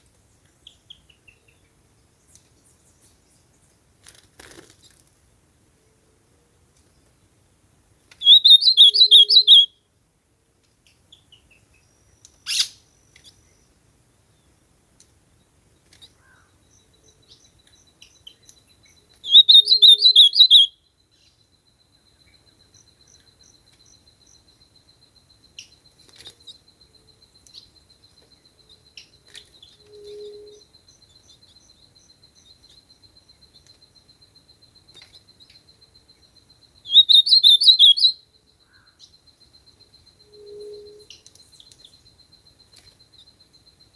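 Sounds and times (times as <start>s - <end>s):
bird singing warbled phrases: 8.2s - 9.8s, 16.2s - 21.4s, 34.9s - 42.2s.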